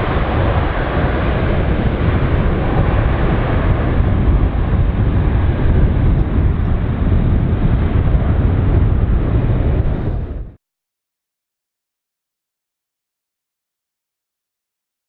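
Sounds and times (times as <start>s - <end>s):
jet engines rumbling: 0.0s - 10.6s.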